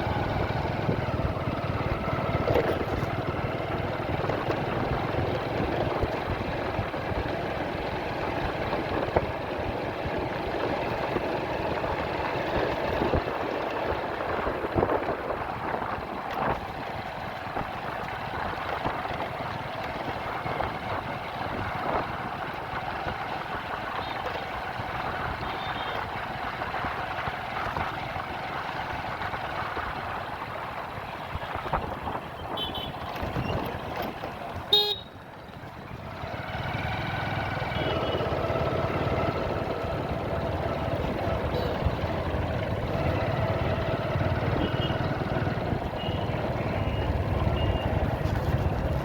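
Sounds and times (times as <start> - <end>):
motorcycle engine hum: 0.0 - 49.0
wind and road rush: 0.0 - 49.0
vehicle horns honking: 32.4 - 33.2, 34.7 - 35.2, 37.7 - 38.4, 41.4 - 42.0, 44.5 - 45.2, 45.9 - 48.0.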